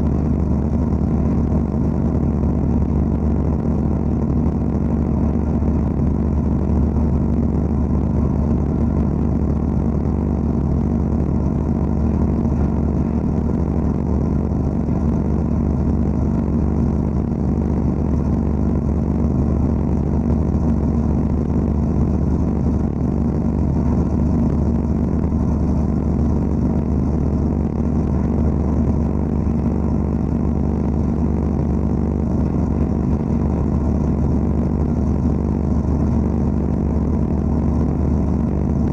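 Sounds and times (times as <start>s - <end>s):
low machine hum: 0.0s - 38.9s.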